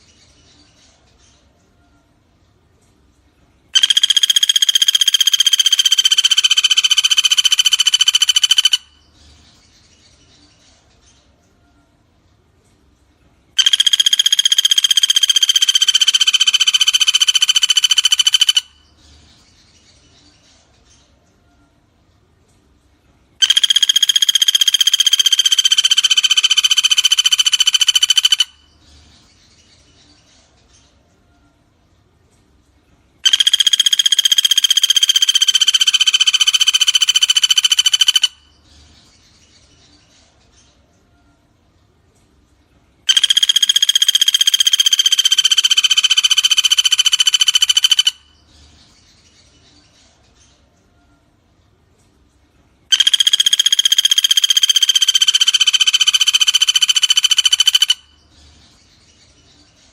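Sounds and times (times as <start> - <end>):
woodpecker rattling trill: 3.8 - 9.0, 13.6 - 18.9, 23.4 - 28.8, 33.2 - 38.6, 43.1 - 48.4, 52.9 - 58.4.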